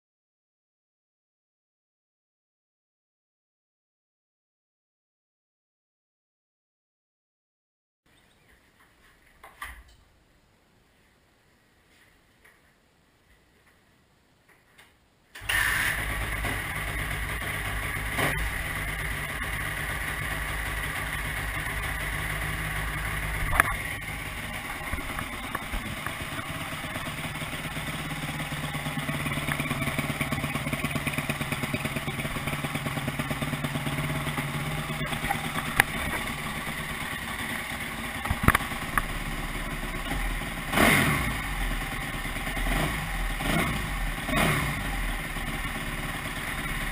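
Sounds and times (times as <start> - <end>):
motorcycle engine idling and revving: 15.4 - 46.9.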